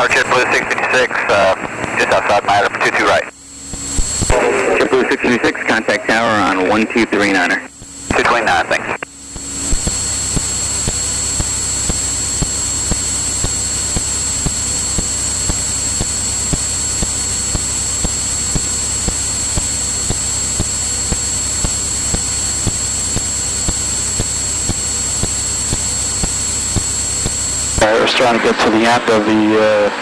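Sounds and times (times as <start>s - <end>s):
aircraft engine and propeller drone: 0.0s - 30.0s
thin high whine: 0.0s - 30.0s.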